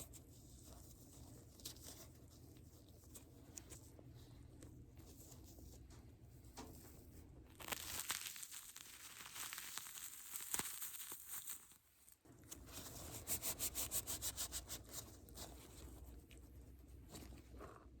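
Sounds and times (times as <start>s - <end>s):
crinkling handling sounds: 0.0s - 13.3s.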